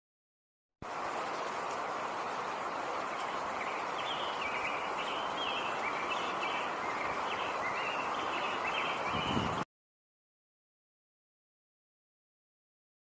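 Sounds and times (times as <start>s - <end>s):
small bird chirping: 3.1s - 9.6s.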